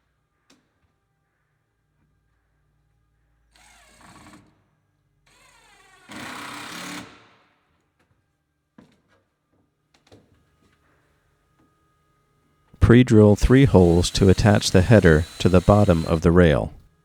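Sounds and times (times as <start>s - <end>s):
power drill driving screws: 13.2s - 16.8s.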